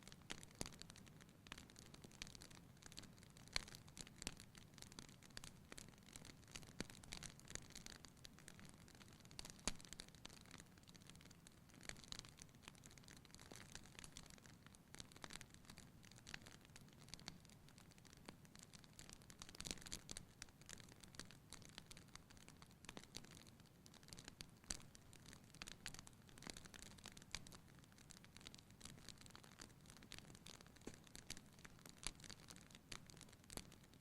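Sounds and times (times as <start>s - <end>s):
fire crackling and popping: 0.0s - 34.0s
low steady hiss: 0.0s - 34.0s.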